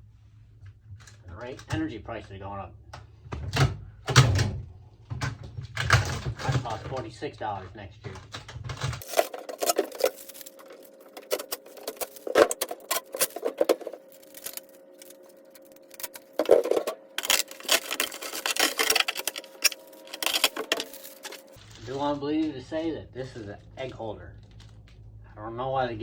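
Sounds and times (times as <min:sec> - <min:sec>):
plastic packaging clicks and clatter: 0:05.1 - 0:07.0, 0:08.0 - 0:22.6, 0:23.8 - 0:25.0.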